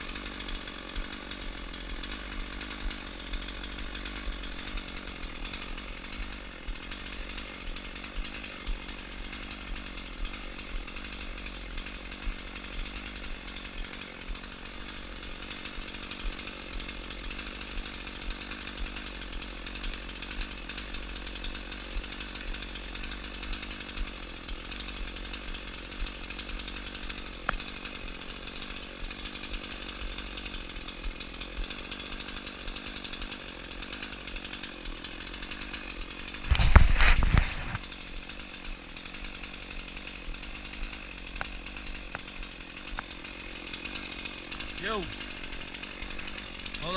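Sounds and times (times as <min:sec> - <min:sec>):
chainsaw running: 0:00.0 - 0:46.9.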